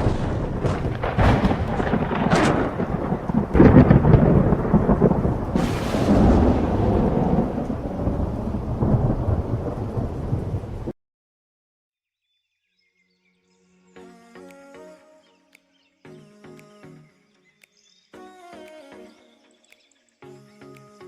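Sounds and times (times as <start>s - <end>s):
rain: 0.0s - 10.9s
thunder cracking and rumbling: 0.0s - 11.0s.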